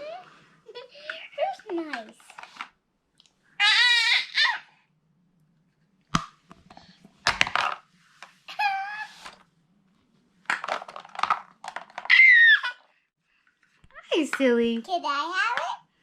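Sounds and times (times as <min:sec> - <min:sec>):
plastic puzzle pieces clattering: 0:10.5 - 0:12.4.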